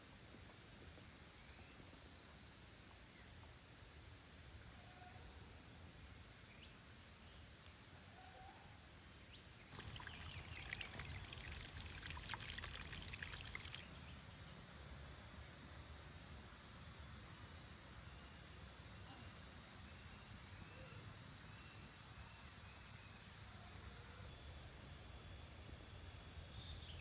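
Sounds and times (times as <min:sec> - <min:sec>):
insects droning: 0:09.3 - 0:27.0.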